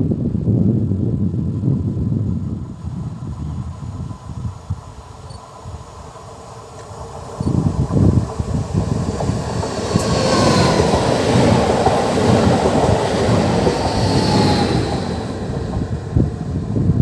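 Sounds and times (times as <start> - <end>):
train wheels rumbling on rails: 1.5 - 17.0.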